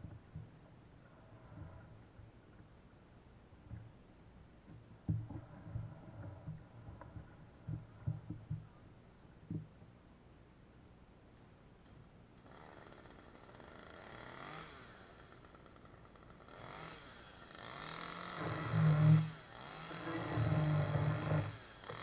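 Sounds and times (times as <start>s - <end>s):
chainsaw revving: 12.4s - 22.0s
chainsaw running faintly: 12.4s - 22.0s.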